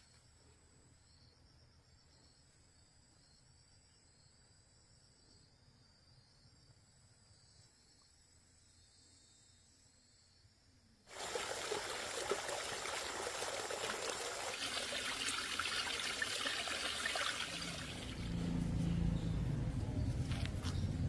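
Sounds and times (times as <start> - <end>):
water pouring and splashing: 11.1 - 18.8.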